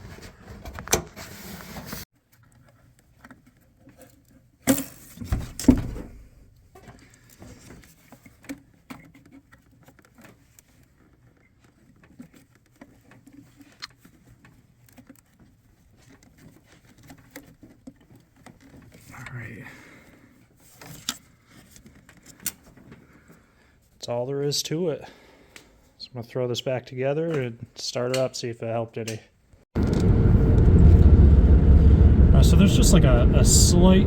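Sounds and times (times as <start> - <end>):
hose handling clicks and rustles: 6.6 - 19.1, 20.3 - 23.4.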